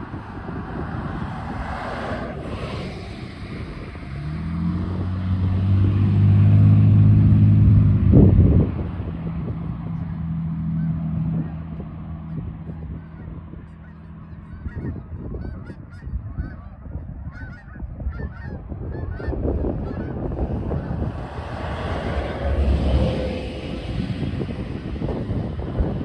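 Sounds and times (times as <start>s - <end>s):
low rumble: 0.0s - 26.0s
geese honking: 13.0s - 21.1s.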